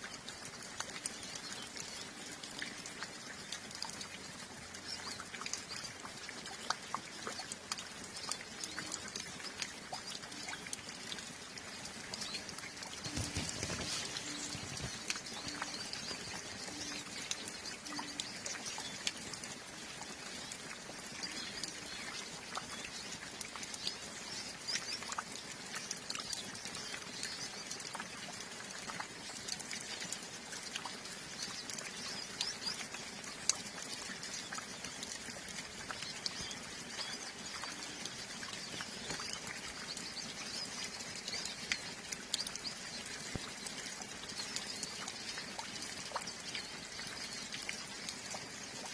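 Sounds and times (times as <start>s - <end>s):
light rain pattering: 0.0s - 48.9s
water drops dripping: 0.0s - 48.9s
birds chirping: 11.6s - 19.3s.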